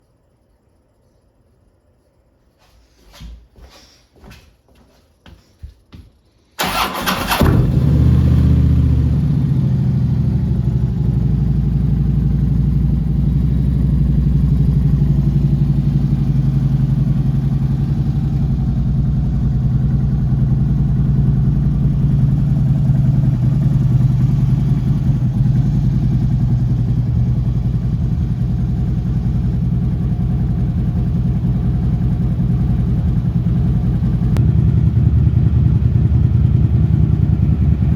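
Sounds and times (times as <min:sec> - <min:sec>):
motorcycle engine cranking: 0:06.6 - 0:07.9
motorcycle engine idling: 0:06.6 - 0:37.9.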